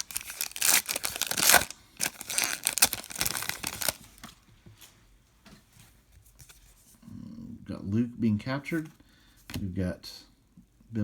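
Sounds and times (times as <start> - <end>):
wrapper being torn and crinkled: 0.0 - 4.2
cards being handled: 0.0 - 4.4.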